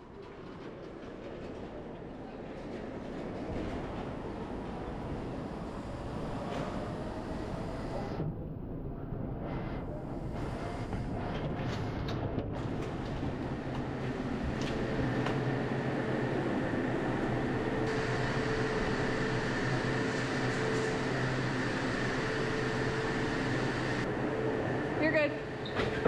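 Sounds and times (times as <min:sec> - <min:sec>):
machinery droning: 0:12.6 - 0:26.0.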